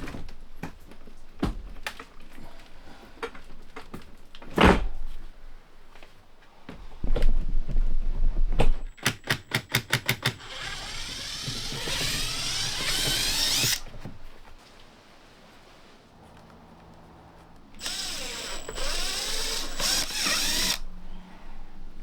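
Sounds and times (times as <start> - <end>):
harsh tool whir: 10.4 - 13.9, 17.8 - 20.9.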